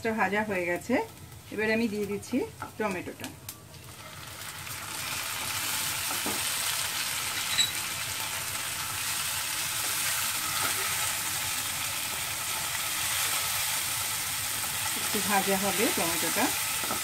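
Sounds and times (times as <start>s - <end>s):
vegetables sizzling in oil: 0.0s - 17.0s
spatula stirring in a pan: 3.8s - 17.0s.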